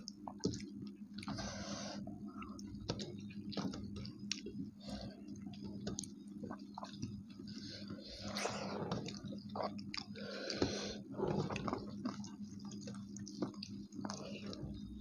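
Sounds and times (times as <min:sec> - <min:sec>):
people chewing food: 0:00.0 - 0:15.0
steady low hum: 0:00.0 - 0:15.0.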